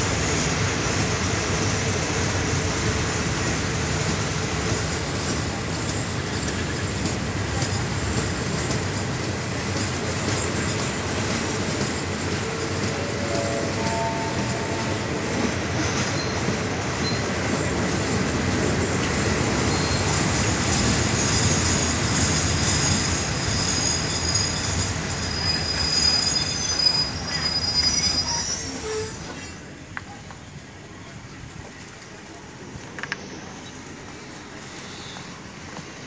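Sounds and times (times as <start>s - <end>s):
train carriage rumbling: 0.0s - 36.0s
train brakes squealing: 4.6s - 29.8s, 33.2s - 36.0s.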